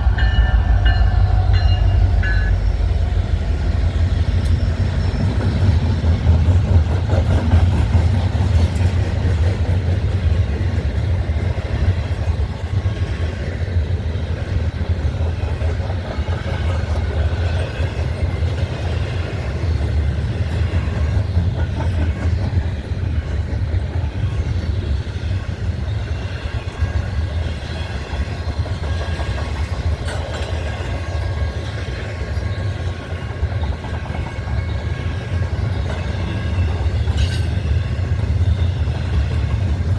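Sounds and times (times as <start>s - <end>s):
faint high ringing tones: 0.0s - 5.6s
train wheels rumbling on rails: 0.0s - 39.9s.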